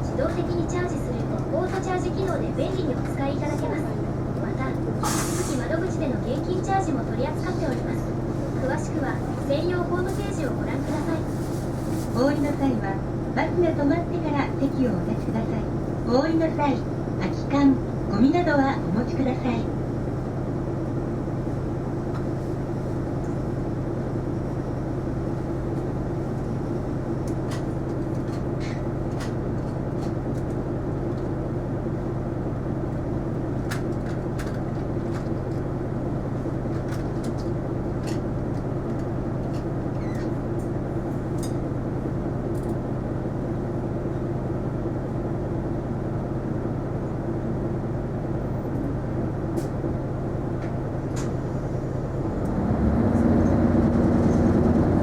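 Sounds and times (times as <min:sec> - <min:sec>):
bus engine and road hum: 0:00.0 - 0:55.0.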